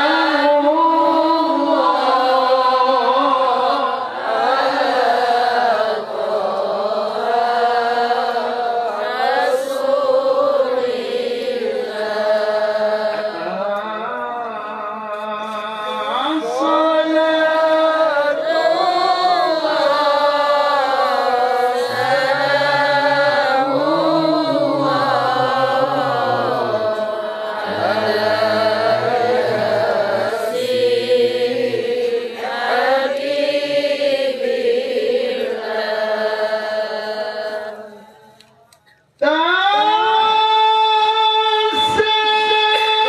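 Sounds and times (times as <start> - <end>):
man reciting melodically: 0.0 - 4.2, 12.9 - 32.7, 37.8 - 43.0.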